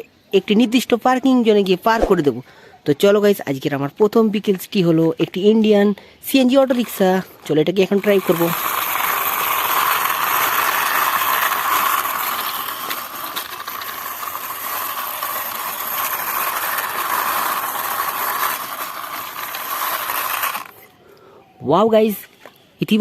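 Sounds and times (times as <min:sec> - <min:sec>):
toy wheels scraping along wall: 0:04.4 - 0:21.0.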